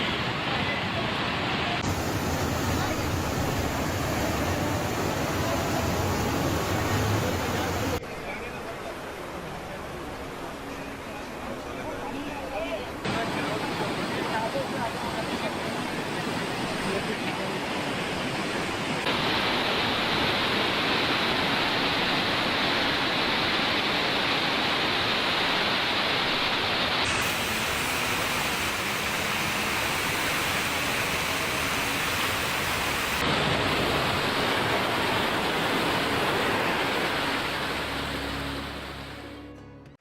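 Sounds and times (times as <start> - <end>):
heavy water rushing: 0.0 - 39.4.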